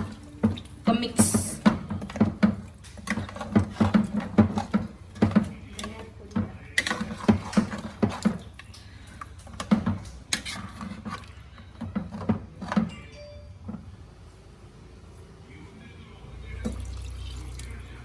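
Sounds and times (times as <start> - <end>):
spoon stirring in a pot: 0.0 - 13.0.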